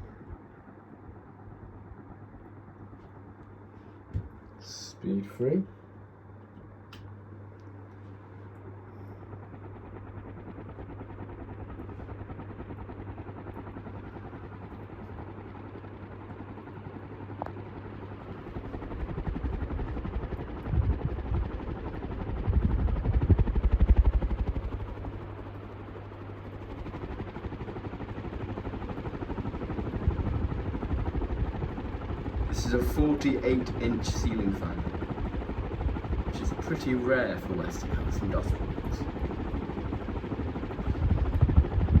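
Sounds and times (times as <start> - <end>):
ceiling fan motor hum and whoosh: 0.0 - 42.0
wind buffeting microphone: 18.9 - 24.7, 29.7 - 36.5, 37.8 - 42.0.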